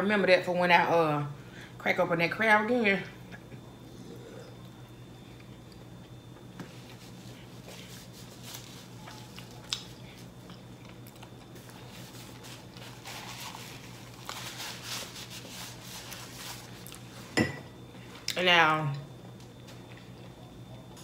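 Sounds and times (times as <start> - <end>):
steady low hum: 0.0 - 21.0
person chewing food: 3.6 - 14.6, 19.2 - 21.0.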